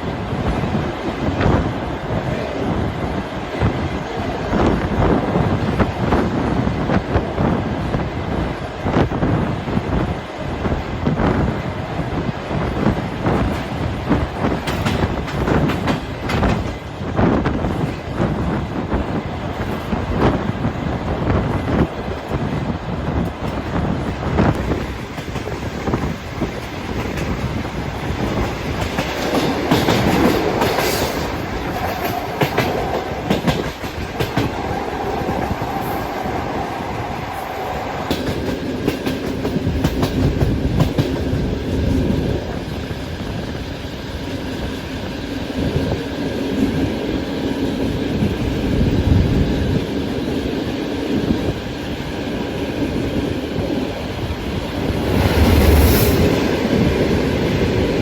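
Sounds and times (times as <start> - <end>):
train rumble: 0.0 - 58.0
train wheels clickety-clack: 0.0 - 58.0.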